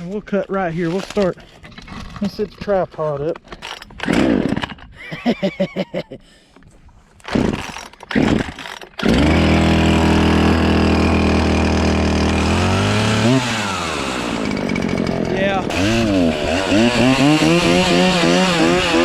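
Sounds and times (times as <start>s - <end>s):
chainsaw pull cord: 0.6s - 2.7s, 3.3s - 5.0s, 7.2s - 19.0s
chainsaw engine idling and revving: 3.6s - 4.8s, 7.2s - 19.0s.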